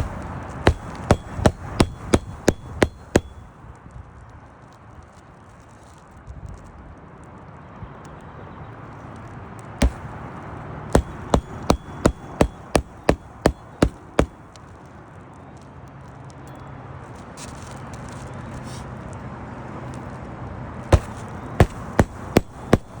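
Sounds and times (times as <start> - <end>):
hammer driving nails: 0.0 - 3.4, 9.8 - 10.1, 11.0 - 14.4, 21.0 - 23.0.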